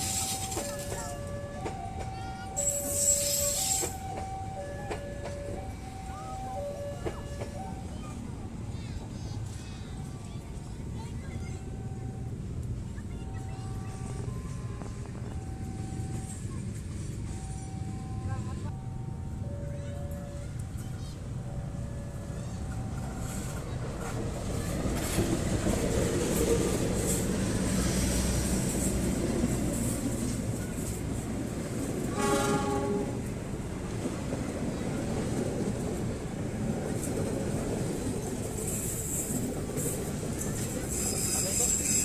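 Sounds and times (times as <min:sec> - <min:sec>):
train wheels rumbling on rails: 0:00.0 - 0:42.0
train horn: 0:32.0 - 0:33.3.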